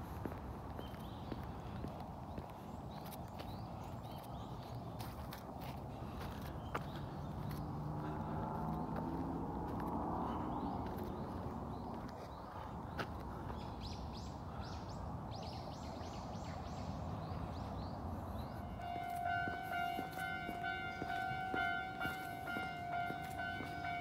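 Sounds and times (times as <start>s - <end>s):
outdoor background noise: 0.0s - 24.0s
bird chirping: 10.3s - 24.0s
sustained steady tones: 18.5s - 24.0s.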